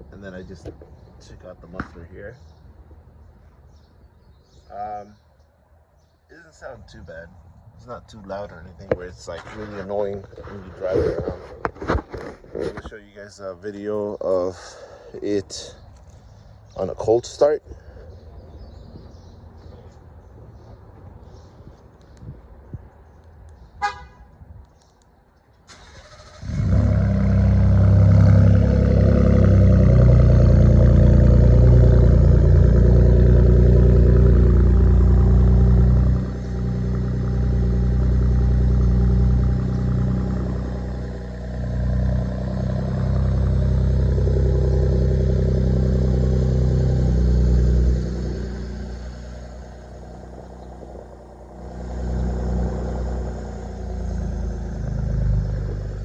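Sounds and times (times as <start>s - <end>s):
engine idling loud: 26.5s - 56.0s
starter chirp: 32.8s - 56.0s.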